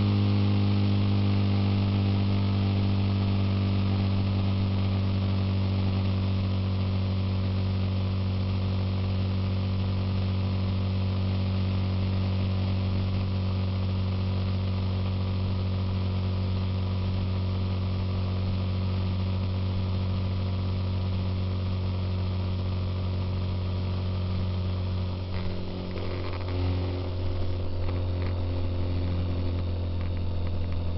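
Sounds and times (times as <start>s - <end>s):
motorcycle engine droning: 0.0s - 8.4s, 21.2s - 30.9s.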